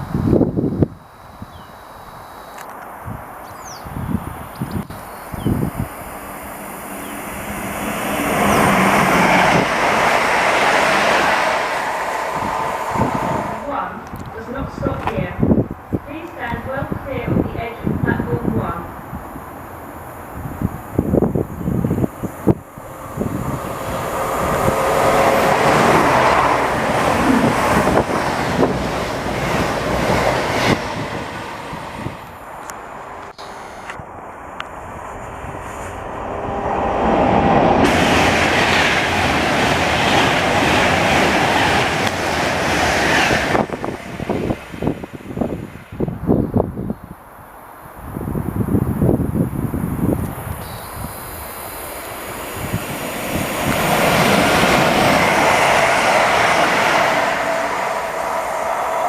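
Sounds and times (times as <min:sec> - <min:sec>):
train rumbling past: 0:00.0 - 0:59.0
train wheels clicking: 0:37.8 - 0:44.9.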